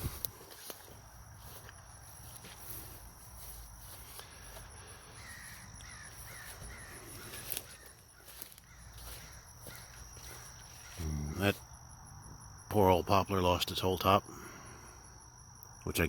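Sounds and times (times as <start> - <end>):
bird calling: 4.2 - 11.4.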